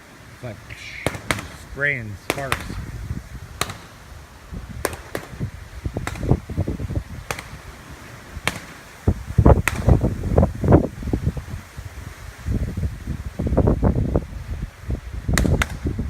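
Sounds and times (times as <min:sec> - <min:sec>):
rough electrical crackle: 0:00.0 - 0:16.0
power line arcing cracks: 0:01.0 - 0:04.1, 0:04.8 - 0:10.8, 0:15.3 - 0:16.0.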